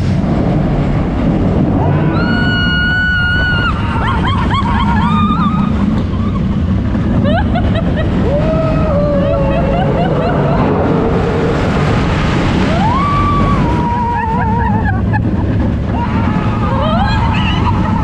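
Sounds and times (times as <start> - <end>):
wind rush and rumble on microphone: 0.0 - 18.0
wailing tones sliding up: 1.8 - 6.6, 12.6 - 15.2.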